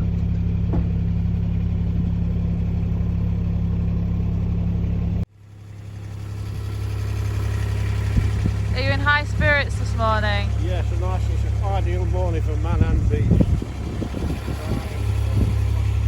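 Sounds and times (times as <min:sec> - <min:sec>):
engine running steadily: 0:00.0 - 0:16.0
steady engine hum: 0:00.0 - 0:16.0.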